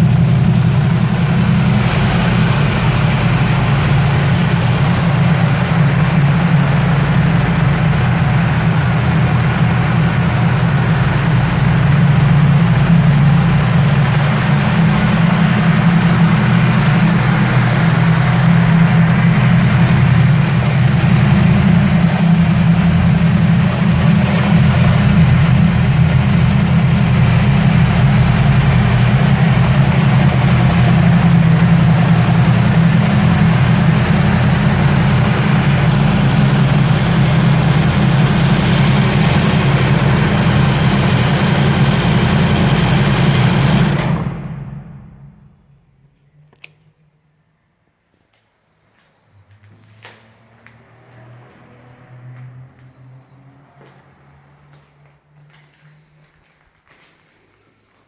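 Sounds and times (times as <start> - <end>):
motorcycle engine idling: 0.0 - 45.8.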